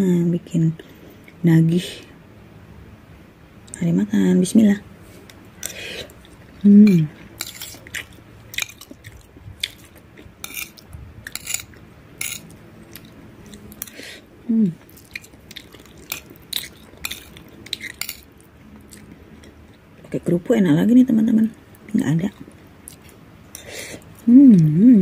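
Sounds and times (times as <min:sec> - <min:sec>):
wet chewing: 0:05.6 - 0:14.0, 0:14.8 - 0:19.8.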